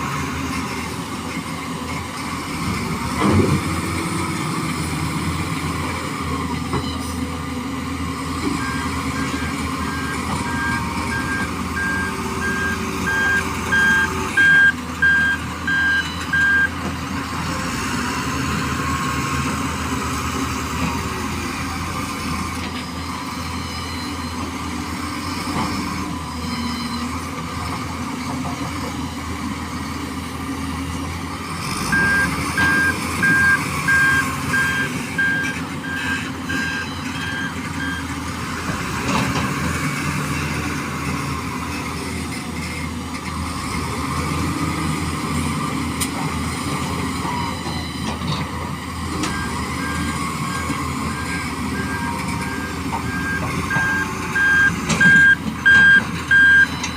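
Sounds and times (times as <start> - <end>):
truck reversing alarm beeping: 8.4 - 16.9, 22.6 - 25.2, 25.9 - 27.7, 31.7 - 39.5, 46.5 - 56.9.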